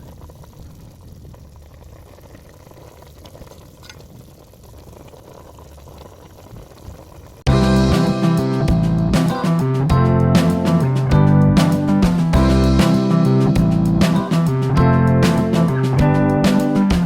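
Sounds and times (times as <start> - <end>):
guitar music: 7.5 - 17.0.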